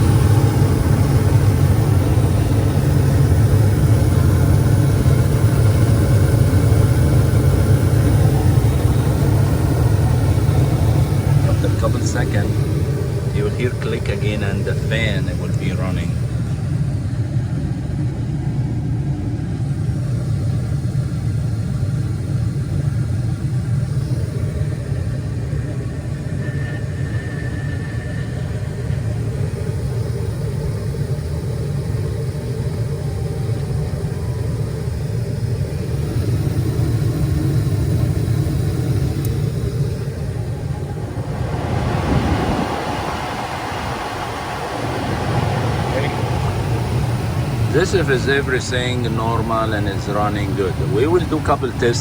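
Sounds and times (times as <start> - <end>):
gas furnace rumbling: 0.0 - 52.0.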